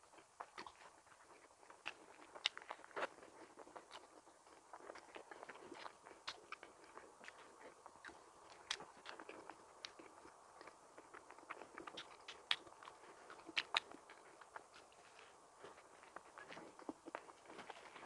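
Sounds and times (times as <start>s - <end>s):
person chewing a donut: 0.0s - 18.0s
wet mouth clicks and smacks: 11.4s - 14.9s.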